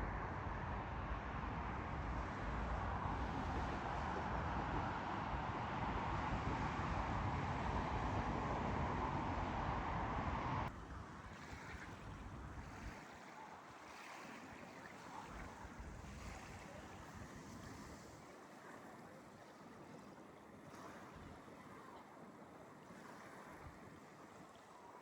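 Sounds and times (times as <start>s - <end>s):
water lapping: 11.1s - 25.0s.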